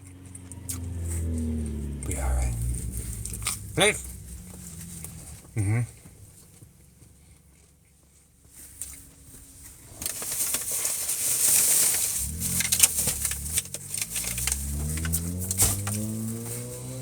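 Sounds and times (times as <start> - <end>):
vehicle engine rising in pitch: 0.0 - 7.4, 12.0 - 17.0
crinkling handling noise: 8.5 - 16.1.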